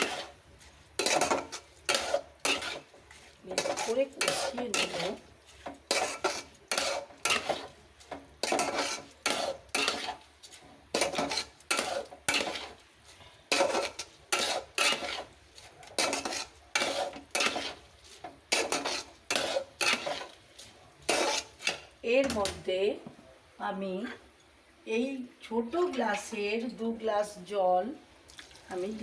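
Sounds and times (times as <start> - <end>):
spoon scraping a cooking pot: 0.0 - 22.6.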